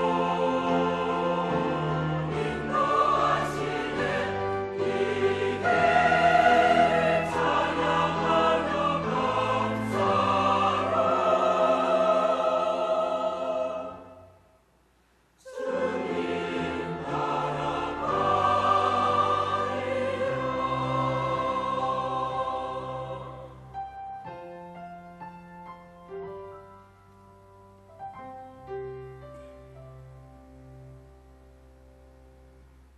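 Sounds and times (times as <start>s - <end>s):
church choir singing: 0.0s - 14.4s, 15.4s - 23.9s.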